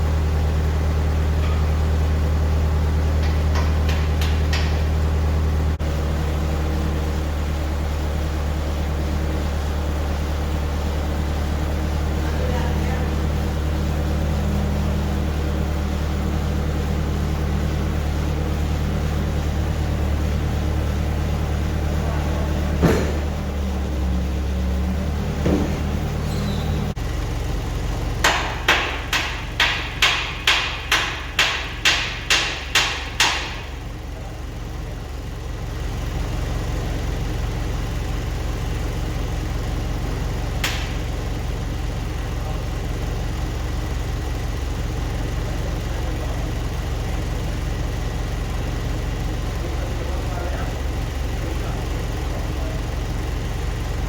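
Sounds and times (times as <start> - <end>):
engine running steadily: 0.0 - 54.0
hammer blows: 28.2 - 33.8.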